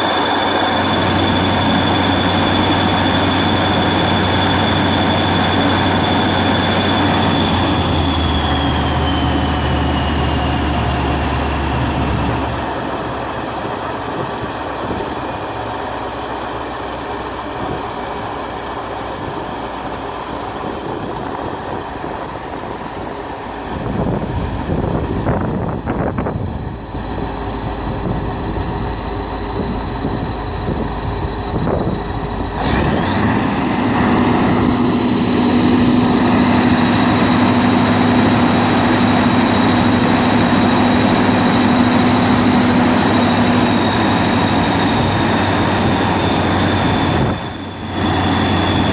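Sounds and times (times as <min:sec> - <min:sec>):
diesel generator running: 0:00.0 - 0:48.9
strong steady hum: 0:20.6 - 0:48.9.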